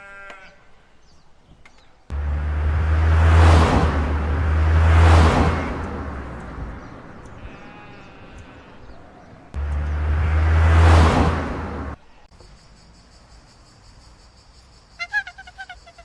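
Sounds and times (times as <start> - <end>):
sheep bleating: 0.0 - 0.6, 7.3 - 9.6.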